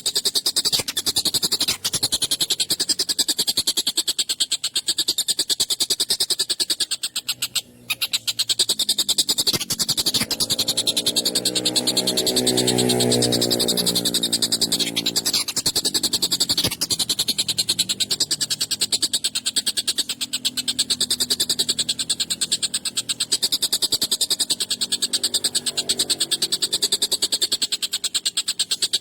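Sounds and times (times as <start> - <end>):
kingfisher harsh chattering call: 0.0 - 29.0.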